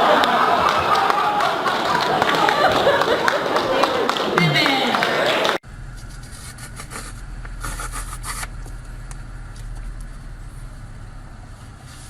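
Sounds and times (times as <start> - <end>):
steady low rumble: 5.6 - 12.0
rustling: 5.8 - 12.0.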